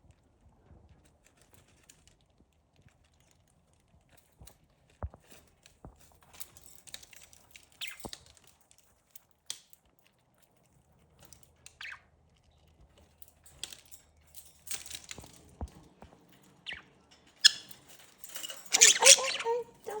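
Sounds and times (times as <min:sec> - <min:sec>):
birds nibbling leaves: 0:17.4 - 0:20.0.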